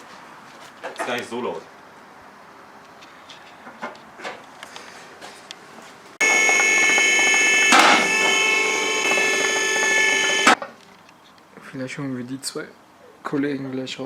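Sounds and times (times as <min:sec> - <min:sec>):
motor whining: 0:06.2 - 0:10.6.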